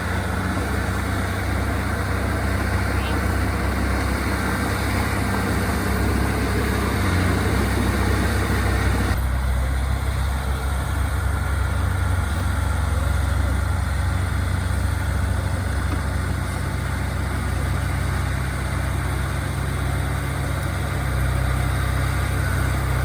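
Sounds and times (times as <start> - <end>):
diesel engine drone: 0.0 - 23.0
higher-pitched mechanical noise: 0.0 - 23.0.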